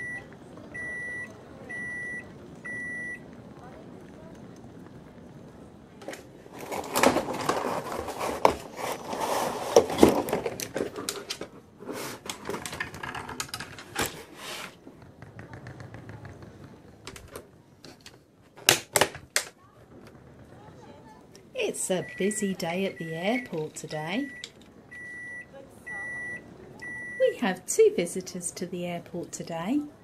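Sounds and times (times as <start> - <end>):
plastic toy pieces clattering: 12.3 - 14.2.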